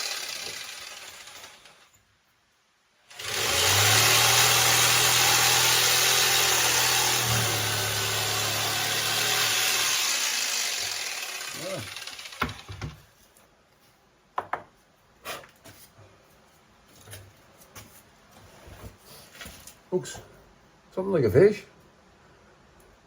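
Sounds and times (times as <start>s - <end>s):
power tool running: 0.0s - 1.8s, 3.1s - 13.0s.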